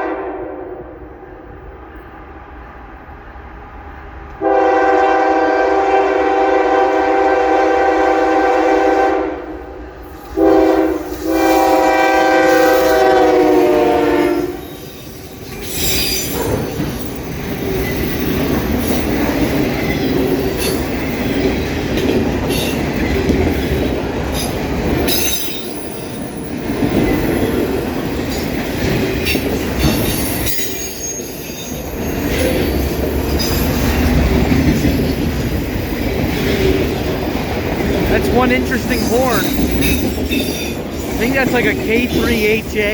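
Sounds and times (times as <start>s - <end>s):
locomotive air horn: 0.0s - 0.9s, 4.4s - 9.6s, 10.4s - 14.7s, 38.1s - 39.6s
wheels clicking and squealing on rails: 9.8s - 42.9s.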